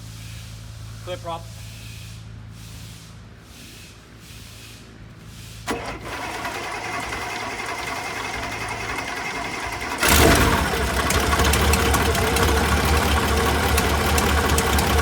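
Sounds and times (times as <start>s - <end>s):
radial engine firing: 5.7s - 15.0s
starter motor clatter: 5.7s - 15.0s.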